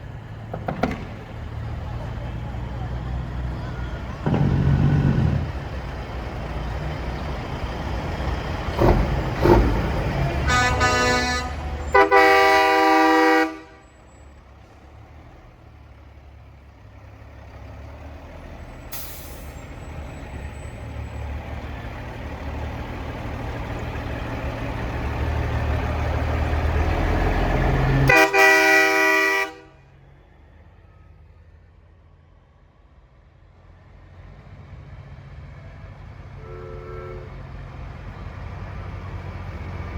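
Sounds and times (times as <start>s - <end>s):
diesel engine rumble: 0.0s - 39.9s
truck air horn blasts: 10.4s - 14.0s, 28.0s - 29.9s, 36.3s - 37.5s
brief air hiss: 18.9s - 19.8s.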